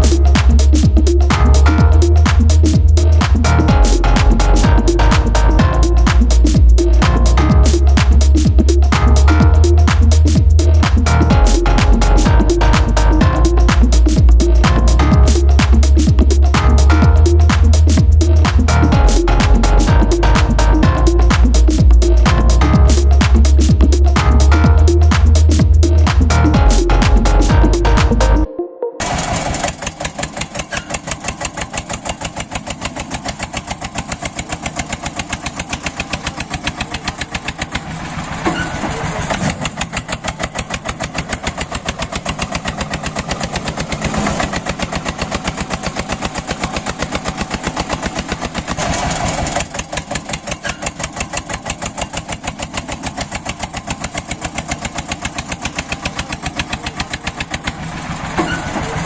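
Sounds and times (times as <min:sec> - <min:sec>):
tractor diesel engine pulsing: 0:00.0 - 0:59.0.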